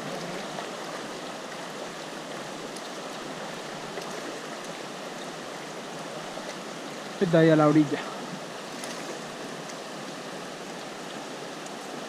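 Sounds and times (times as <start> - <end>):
river water flowing over stones: 0.0 - 12.0.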